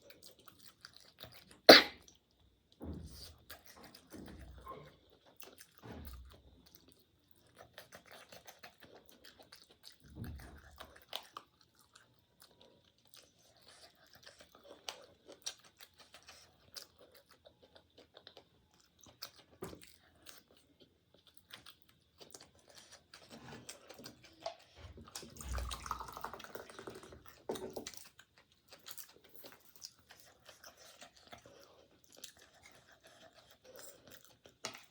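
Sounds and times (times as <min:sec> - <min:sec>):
chewing and crunching food: 0:00.0 - 0:34.9
wet mouth clicks: 0:01.7 - 0:01.9.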